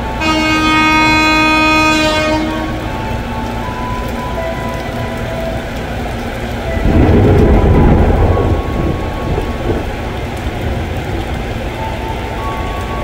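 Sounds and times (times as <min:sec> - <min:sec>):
heavy rain pouring: 0:00.0 - 0:13.0
low rumble: 0:06.6 - 0:11.7.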